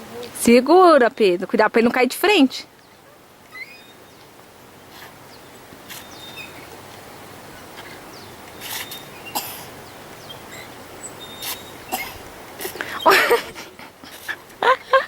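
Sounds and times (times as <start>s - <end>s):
faint bird chirps: 2.8s - 4.3s, 5.3s - 6.7s, 8.1s - 12.0s.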